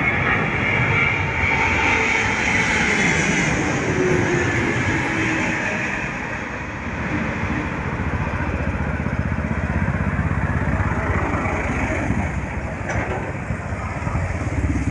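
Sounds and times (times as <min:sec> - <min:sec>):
jet airliner passing: 0:00.0 - 0:14.9
motorcycle engine running: 0:07.9 - 0:14.9.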